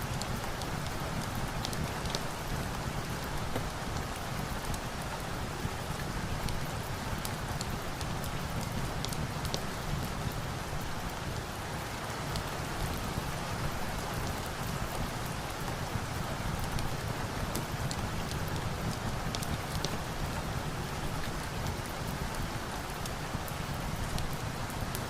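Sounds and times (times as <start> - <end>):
steady rain: 0.0 - 25.0
log fire crackling: 6.4 - 11.1, 15.7 - 20.3.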